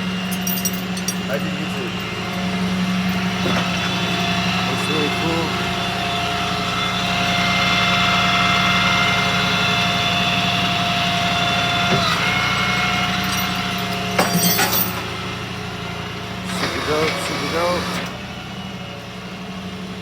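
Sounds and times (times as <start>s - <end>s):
hydraulic system whine: 0.0s - 20.0s
truck engine hum: 0.0s - 20.0s
metallic clattering: 0.2s - 4.4s, 12.9s - 15.1s.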